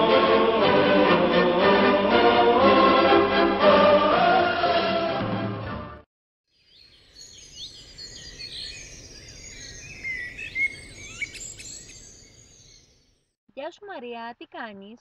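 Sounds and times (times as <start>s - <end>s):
choral music: 0.0s - 6.1s
small birds chirping: 6.5s - 13.3s.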